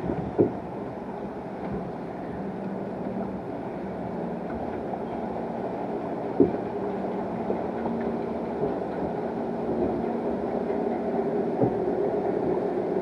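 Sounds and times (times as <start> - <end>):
wind noise on microphone: 0.0 - 0.8.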